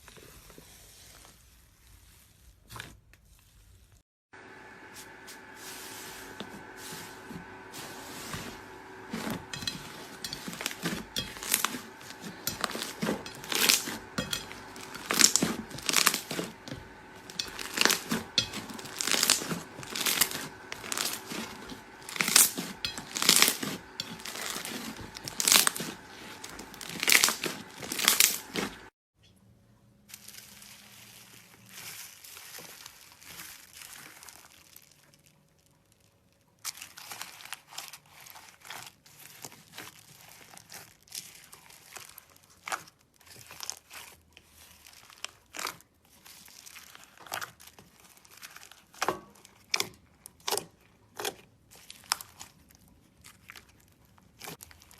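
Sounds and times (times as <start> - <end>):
slime crinkling and crackling: 6.3 - 28.9, 30.2 - 49.8.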